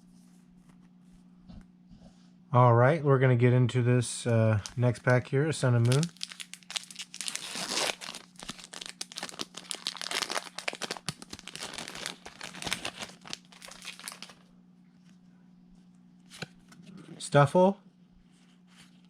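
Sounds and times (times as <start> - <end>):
foil wrapper tearing and crinkling: 5.7 - 14.4.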